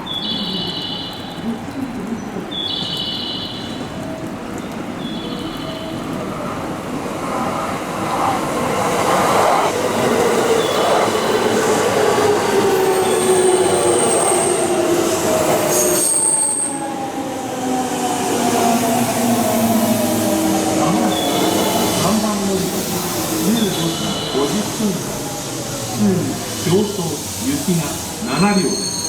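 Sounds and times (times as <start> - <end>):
wheel or brake squeals: 28.4 - 29.0.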